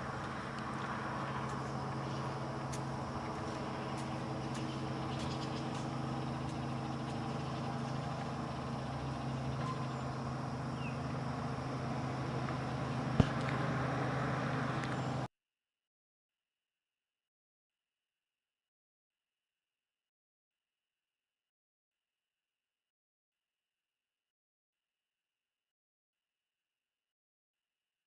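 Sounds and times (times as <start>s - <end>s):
low hum: 0.0s - 15.3s
traffic rumble: 0.0s - 15.3s
faint high ticks: 0.2s - 7.4s, 14.8s - 15.0s.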